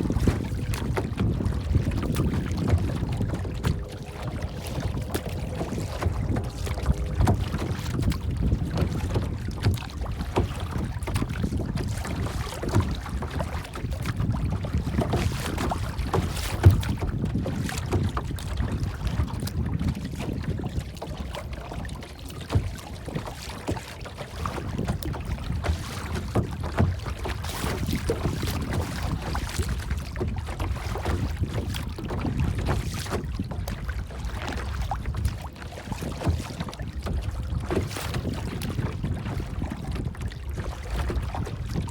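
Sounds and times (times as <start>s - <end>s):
water rushing: 0.0s - 13.8s.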